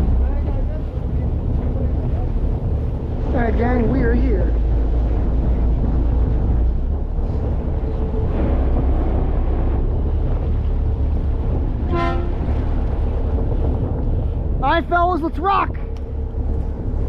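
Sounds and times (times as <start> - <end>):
boat engine rumbling: 0.0 - 17.0
wind on microphone: 0.0 - 17.0
boat horn toot: 11.6 - 13.1.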